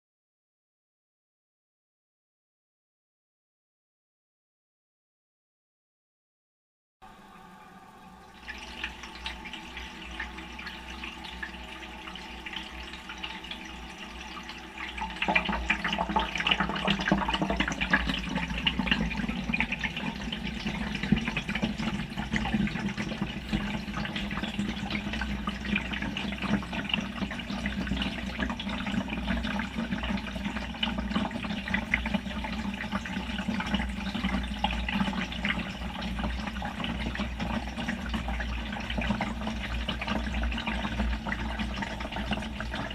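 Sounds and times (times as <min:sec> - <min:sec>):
quiet hum: 0:07.0 - 0:42.9
water rushing into washing machine drum: 0:07.0 - 0:42.9.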